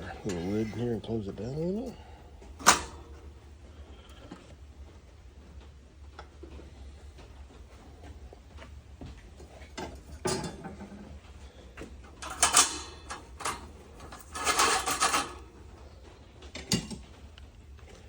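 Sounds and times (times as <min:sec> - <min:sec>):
metal lid clanking and scraping: 0:02.6 - 0:03.1, 0:09.8 - 0:11.1, 0:12.2 - 0:15.5.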